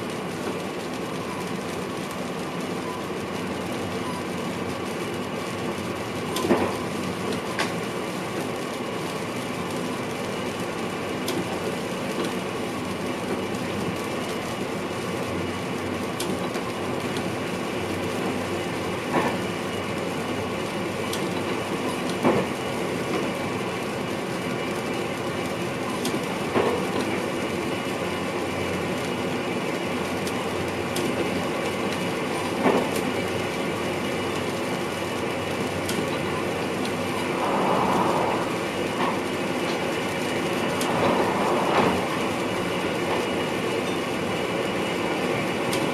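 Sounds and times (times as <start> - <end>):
train rumble and hum: 0.0 - 45.9.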